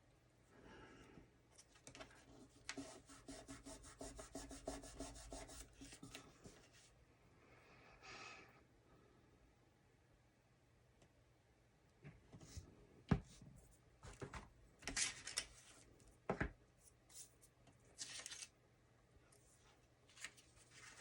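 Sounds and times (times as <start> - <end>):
soft paper rustles: 13.6 - 16.2, 16.8 - 18.6, 19.2 - 21.0.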